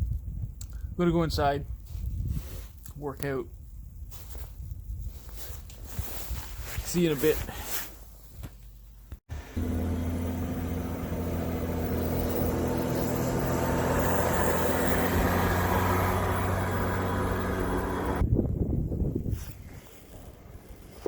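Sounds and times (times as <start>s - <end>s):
truck engine passing: 9.3s - 18.2s.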